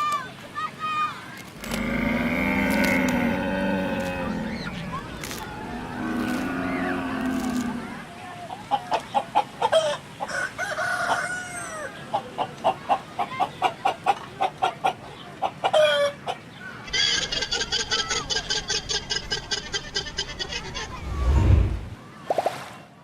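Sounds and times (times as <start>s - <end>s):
chickens clucking: 3.9s - 11.3s, 11.9s - 21.7s.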